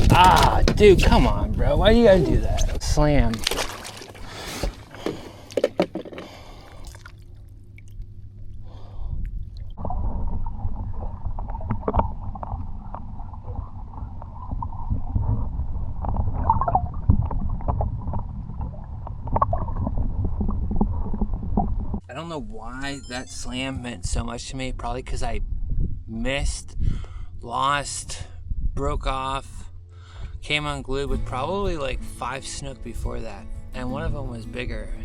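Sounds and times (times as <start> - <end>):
thumps: 0.0 - 1.4
small boat engine rumble: 0.0 - 24.4, 26.8 - 35.0
wind: 0.0 - 35.0
knocks and handling: 2.6 - 6.4.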